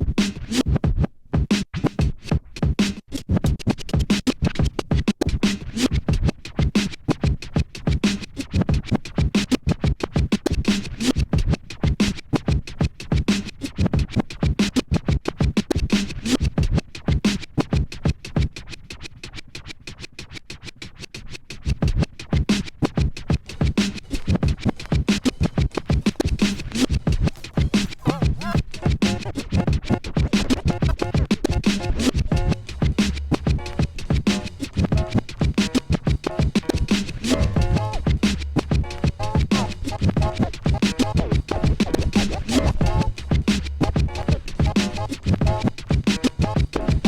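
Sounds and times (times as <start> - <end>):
turntable record scratching: 0.0 - 47.0
electronic beat: 21.6 - 47.0.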